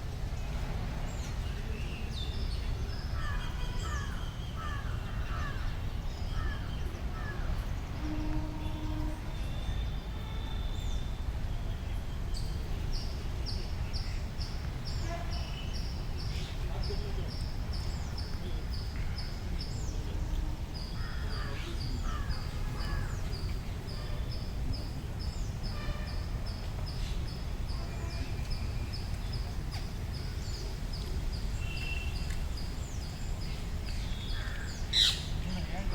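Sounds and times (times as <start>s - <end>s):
birds chirping and harsh calls: 12.4s - 35.9s.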